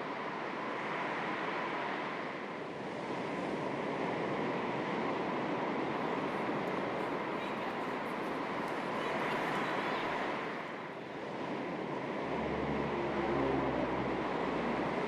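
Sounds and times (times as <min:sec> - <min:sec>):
small waves lapping at shore: 0:02.6 - 0:12.0.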